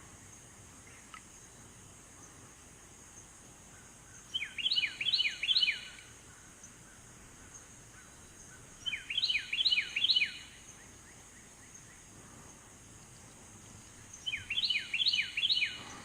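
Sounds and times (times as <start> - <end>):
faint high hiss: 0.0 - 16.0
songbird whistled phrases: 14.3 - 15.8.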